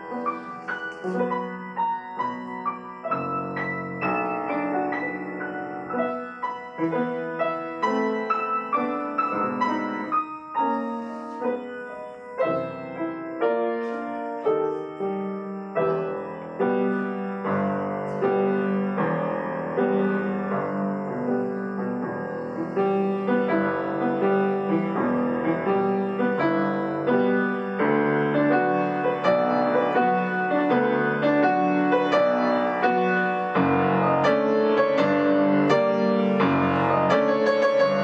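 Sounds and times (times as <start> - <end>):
solo piano playing: 0.0 - 38.0.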